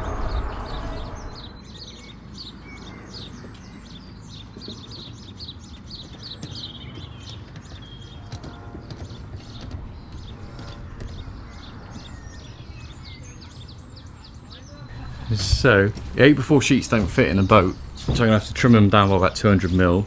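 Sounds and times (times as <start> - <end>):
low outdoor rumble: 0.0 - 1.7, 14.8 - 20.0
songbird chirping: 0.0 - 20.0.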